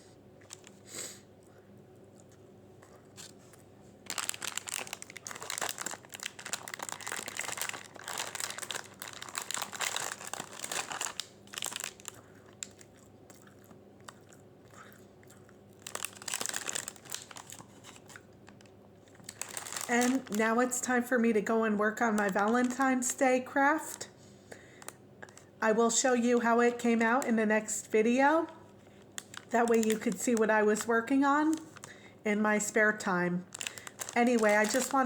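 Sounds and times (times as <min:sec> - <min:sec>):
paper wrapper crinkling: 0:00.4 - 0:00.8, 0:03.1 - 0:13.0, 0:15.8 - 0:21.0, 0:22.0 - 0:23.2, 0:28.8 - 0:32.0, 0:33.5 - 0:35.0.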